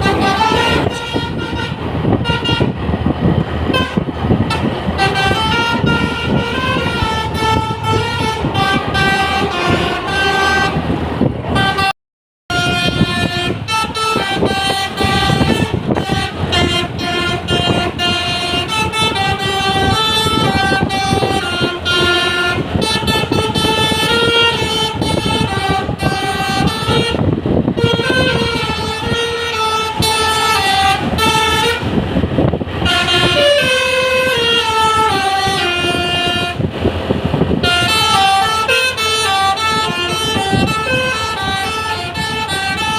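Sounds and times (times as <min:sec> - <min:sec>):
bus musical horn playing a tune: 0:00.0 - 0:42.9.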